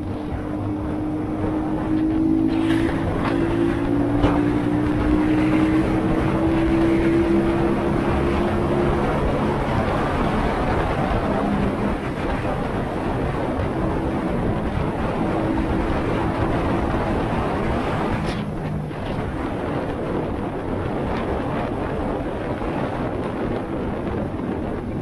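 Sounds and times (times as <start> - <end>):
motorcycle engine cruising: 0.0 - 25.0
wind and road noise: 0.0 - 25.0.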